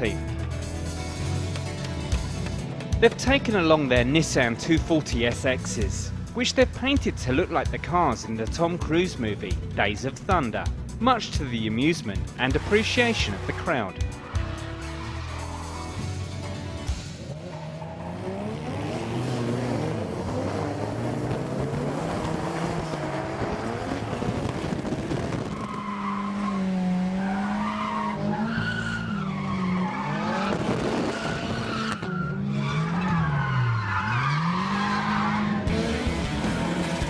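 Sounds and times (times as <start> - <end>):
car engine revving: 12.0 - 37.0
tyres squealing: 25.5 - 35.7.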